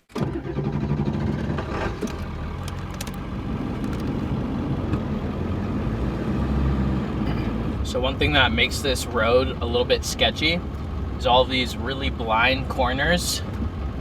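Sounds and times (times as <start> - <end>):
truck engine drone: 0.0 - 14.0
road noise: 0.2 - 14.0.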